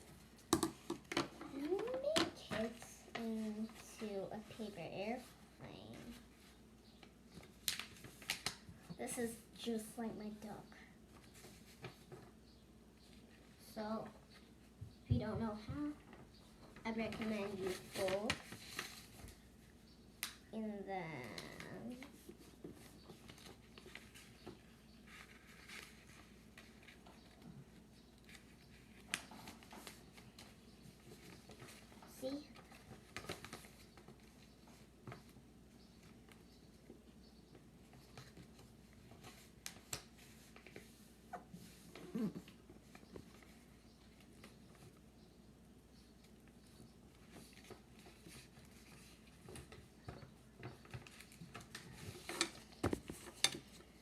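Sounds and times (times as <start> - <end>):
paper rustling and crinkling: 5.9 - 8.8, 16.9 - 19.6, 21.3 - 37.0, 46.2 - 54.0
paper being folded: 21.3 - 35.4.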